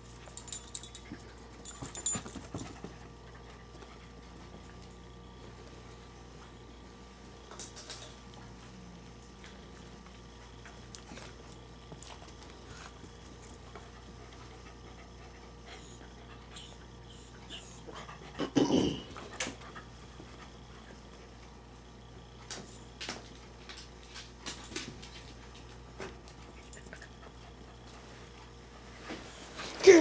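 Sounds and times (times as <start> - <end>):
dog panting softly: 12.7 - 18.4.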